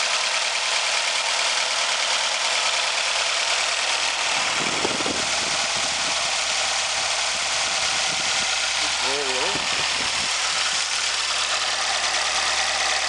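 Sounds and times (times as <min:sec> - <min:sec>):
car engine idling: 0:00.0 - 0:13.0
low rumble: 0:04.1 - 0:13.0.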